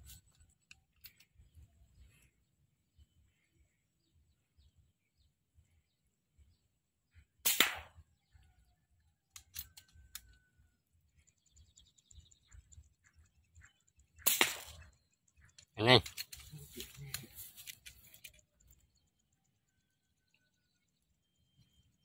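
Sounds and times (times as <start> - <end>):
air rifle shot: 7.4 - 8.0, 14.2 - 14.9.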